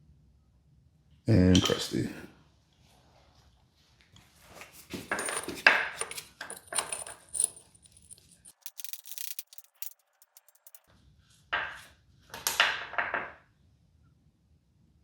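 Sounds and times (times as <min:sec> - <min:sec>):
small metal tools clinking: 0:05.1 - 0:10.9.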